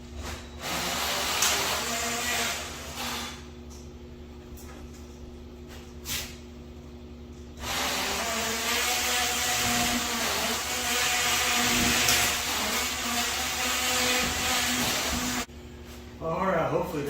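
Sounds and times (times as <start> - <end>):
power tool running: 7.6 - 15.5.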